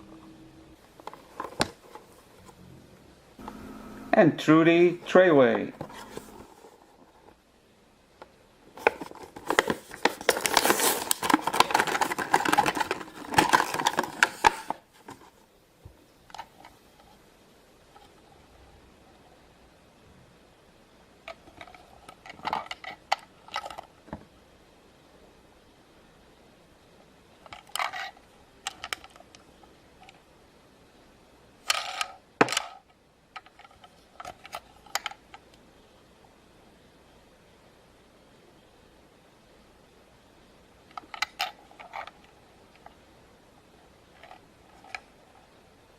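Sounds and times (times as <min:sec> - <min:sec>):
plastic packaging crinkling: 0:08.8 - 0:15.2.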